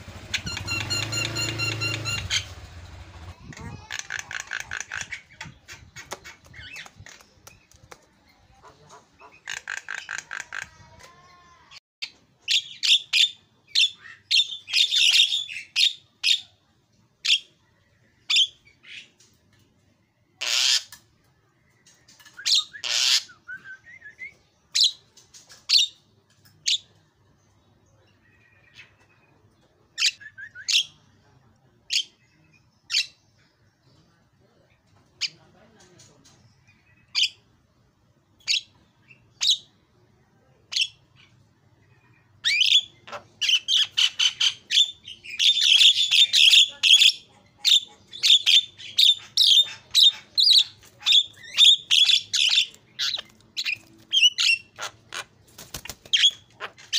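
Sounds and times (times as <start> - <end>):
myna calling: 0.1 - 6.8.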